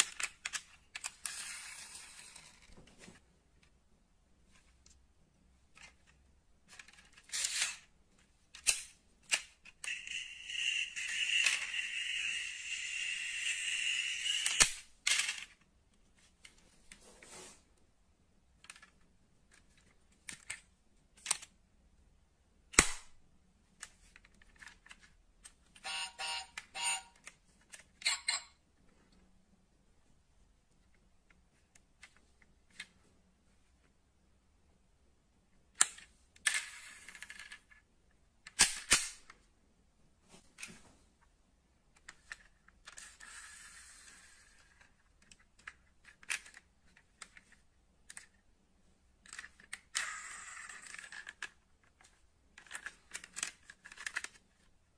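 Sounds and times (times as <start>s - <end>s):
metal toy cars clicking: 8.6s - 15.6s, 49.2s - 52.0s, 52.6s - 54.4s
whirring scrape: 9.9s - 14.6s.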